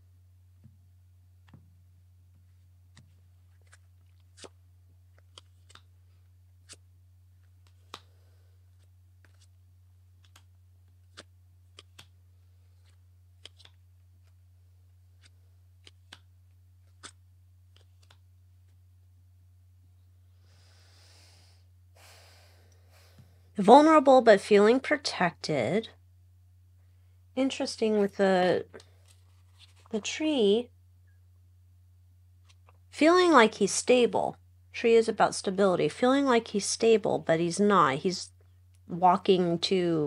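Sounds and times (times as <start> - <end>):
low steady hum: 0.0 - 40.0
cards clicking and tapping: 5.1 - 5.9, 7.4 - 8.1, 8.8 - 9.5, 10.2 - 14.4, 15.2 - 18.2
soft rustle: 28.8 - 30.0.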